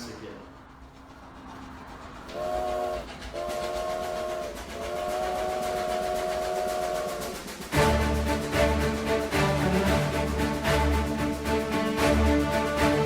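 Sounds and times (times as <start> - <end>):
moving train clatter: 0.0 - 13.0
train whistle blasts: 2.3 - 13.0
music: 7.2 - 13.0.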